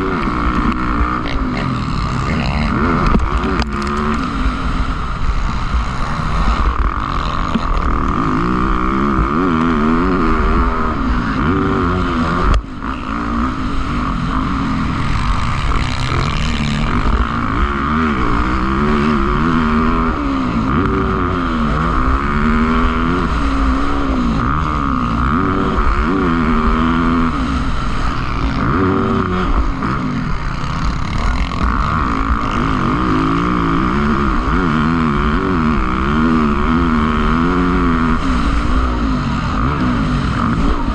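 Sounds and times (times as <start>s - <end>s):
motocross engines revving: 0.0s - 40.9s.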